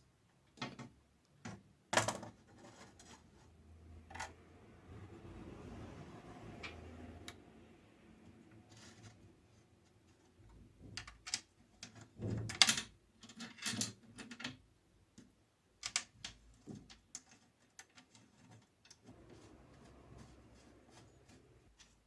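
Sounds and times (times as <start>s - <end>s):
clatter of small hard parts: 10.8s - 14.6s.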